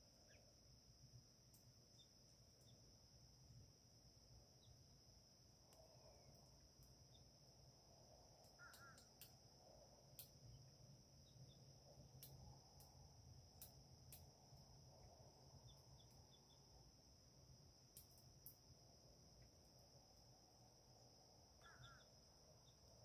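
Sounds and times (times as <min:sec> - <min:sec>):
faint ticks: 0:01.4 - 0:02.8, 0:05.7 - 0:07.2, 0:08.3 - 0:09.4, 0:10.1 - 0:10.6, 0:12.0 - 0:16.5, 0:17.9 - 0:18.6, 0:21.6 - 0:22.1
faint bird call: 0:08.5 - 0:09.2, 0:21.6 - 0:22.1.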